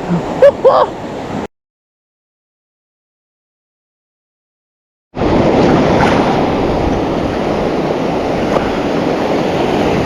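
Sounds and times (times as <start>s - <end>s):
ocean surf: 0.0s - 1.5s, 5.2s - 10.0s
wind on microphone: 5.2s - 10.0s.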